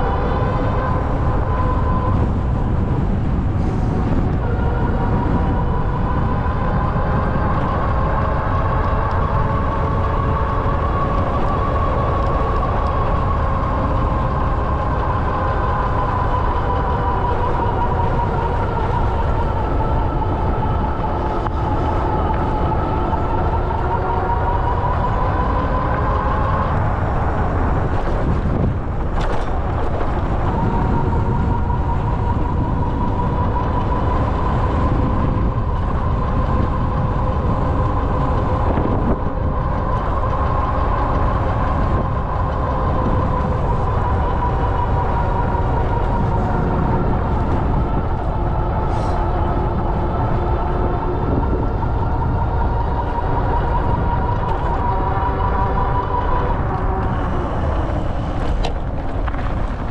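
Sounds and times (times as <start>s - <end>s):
wind: 0.0s - 59.9s.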